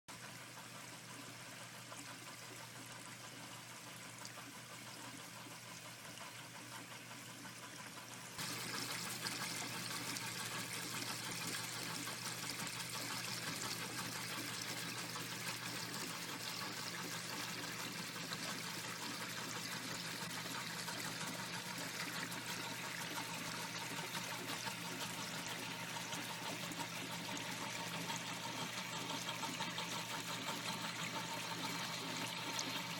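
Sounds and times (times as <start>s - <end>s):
waterfall splashing into pond: 8.4s - 32.9s.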